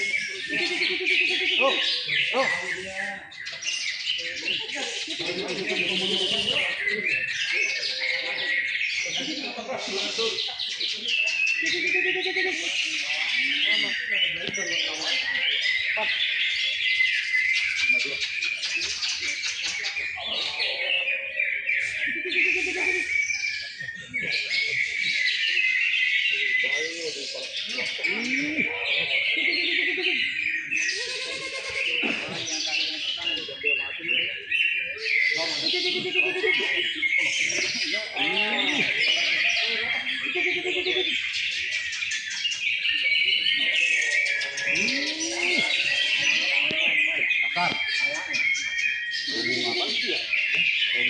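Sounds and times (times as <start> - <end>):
birds singing whistles and chatter: 0.0 - 51.0
murmur of voices: 0.0 - 51.0.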